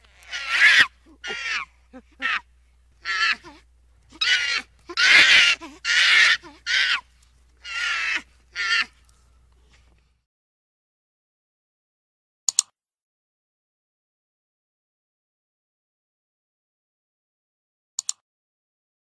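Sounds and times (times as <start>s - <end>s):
high-pitched animal calls: 0.0s - 9.0s.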